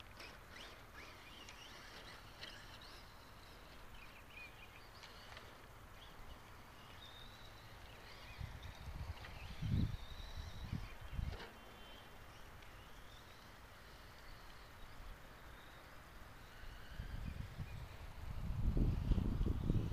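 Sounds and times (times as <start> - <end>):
birds chirping faintly: 0.0 - 18.2
outdoor background noise: 0.0 - 19.9.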